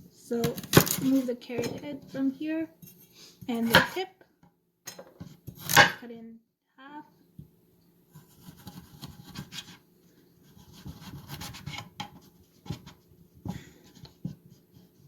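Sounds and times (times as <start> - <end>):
knife slicing carrot: 8.1 - 9.8, 10.4 - 13.0.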